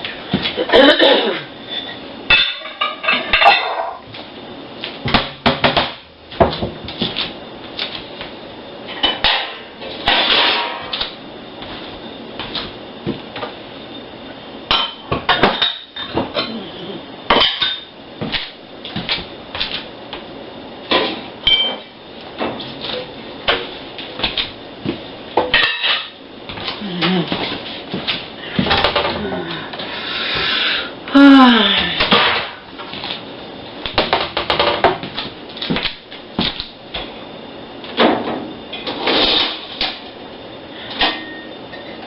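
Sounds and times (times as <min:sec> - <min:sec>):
dishes and cutlery clattering: 0:02.3 - 0:04.0, 0:20.9 - 0:21.9, 0:25.4 - 0:26.2.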